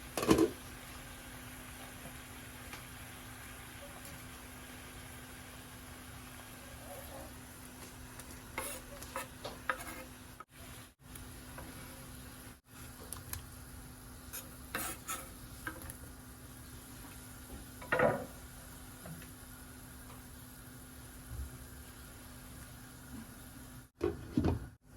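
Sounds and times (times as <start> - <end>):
utensil scraping a cooking pot: 8.2 - 10.5, 14.3 - 15.4.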